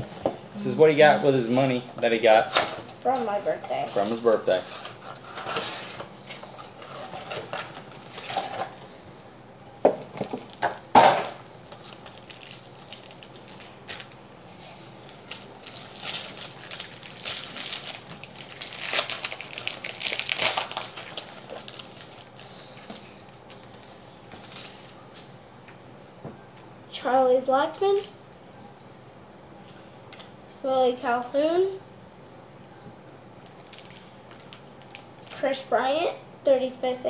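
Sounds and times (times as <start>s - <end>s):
wrapper crinkling: 6.6s - 8.9s, 10.2s - 14.2s, 15.0s - 25.0s, 33.5s - 35.4s
cardboard and wrapper snapping: 15.1s - 24.7s.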